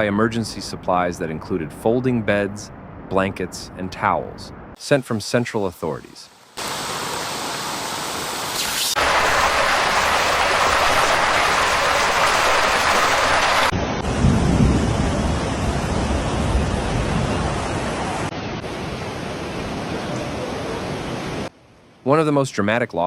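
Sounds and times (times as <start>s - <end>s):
heavy rain rushing: 6.6s - 21.5s.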